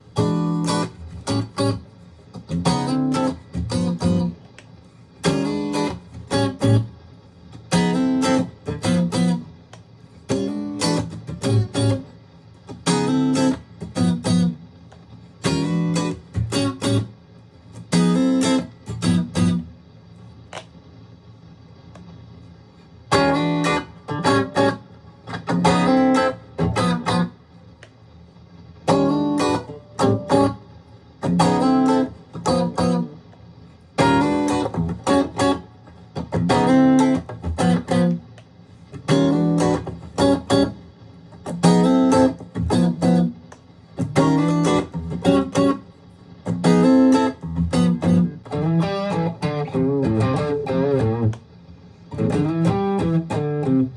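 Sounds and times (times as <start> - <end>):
electric guitar strumming chords: 0.1 - 4.6, 5.2 - 7.0, 7.6 - 17.1, 17.7 - 19.7, 23.1 - 27.4, 28.8 - 30.6, 31.2 - 33.4, 34.0 - 53.9
light guitar pluck: 41.5 - 45.8, 46.5 - 51.4, 52.1 - 53.9.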